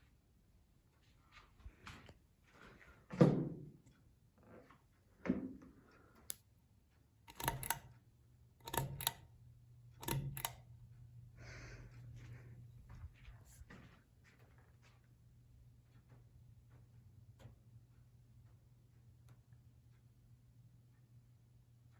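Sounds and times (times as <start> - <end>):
fan motor hum: 7.2 - 13.9
sharp switch clicks: 7.3 - 7.9, 8.6 - 9.3, 10.0 - 10.7.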